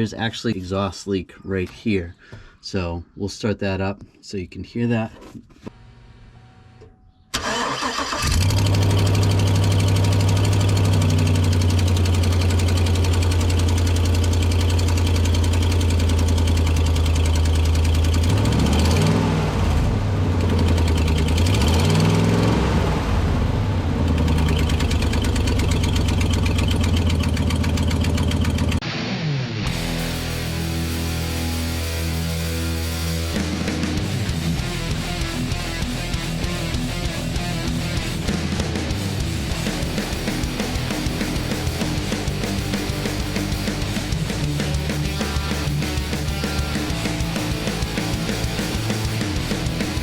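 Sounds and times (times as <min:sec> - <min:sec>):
engine cranking and starting: 0:07.3 - 0:19.2, 0:20.4 - 0:22.5, 0:24.0 - 0:28.8
engine idling and revving: 0:07.4 - 0:28.8, 0:32.7 - 0:50.0
exhaust leak ticking: 0:09.5 - 0:18.3, 0:24.1 - 0:28.8.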